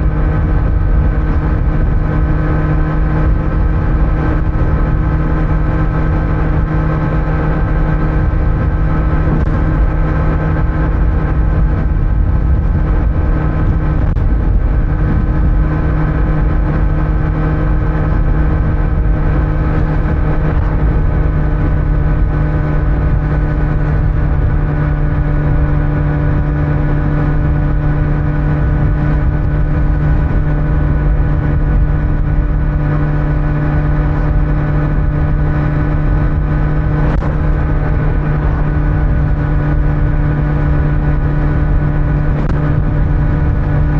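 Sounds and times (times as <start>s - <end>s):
low road rumble: 0.0s - 43.9s
motorcycle engine cruising: 0.0s - 43.9s.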